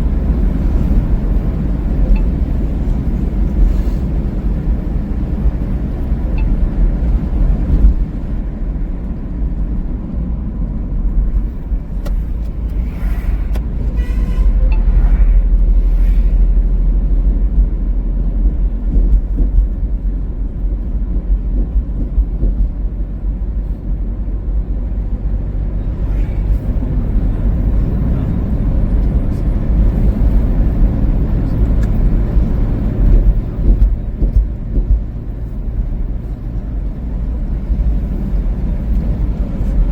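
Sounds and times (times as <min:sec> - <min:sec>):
car road noise rumble: 0:00.0 - 0:39.9.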